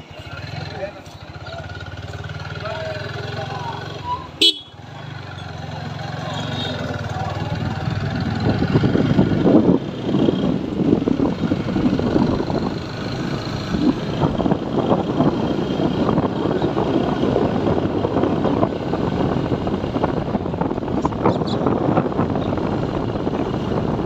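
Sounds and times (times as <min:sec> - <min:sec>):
motorcycle engine running: 0:00.2 - 0:24.0
wind buffeting microphone: 0:06.9 - 0:24.0.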